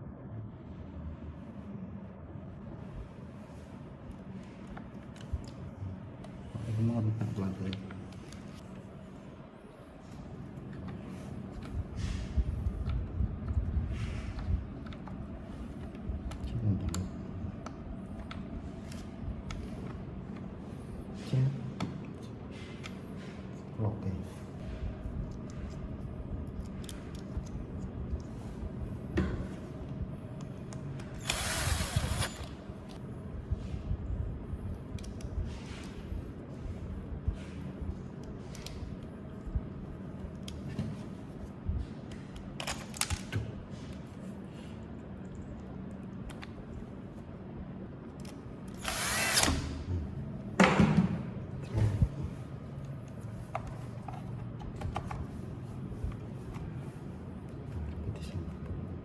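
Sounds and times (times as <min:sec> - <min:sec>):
small power tool running: 0:31.2 - 0:32.5, 0:48.8 - 0:49.8.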